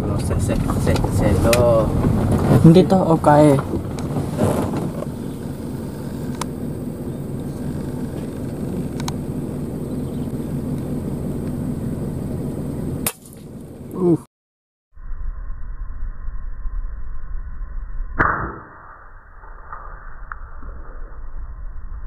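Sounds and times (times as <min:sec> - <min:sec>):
car engine rumbling: 0:00.0 - 0:14.3
sharp crack: 0:13.0 - 0:13.5, 0:18.2 - 0:20.5.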